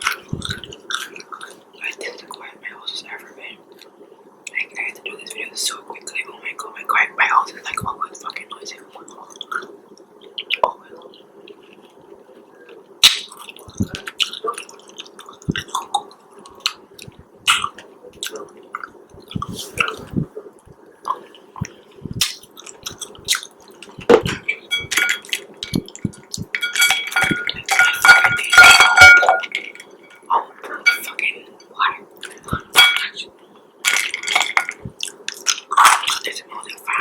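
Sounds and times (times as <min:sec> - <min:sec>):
clinking and ringing: 0:26.6 - 0:30.2, 0:32.8 - 0:33.1.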